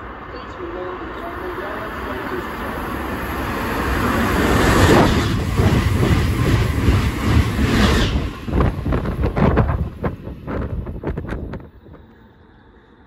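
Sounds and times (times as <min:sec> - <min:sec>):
train passing at speed: 0:00.0 - 0:13.0
wind buffeting microphone: 0:03.9 - 0:12.1.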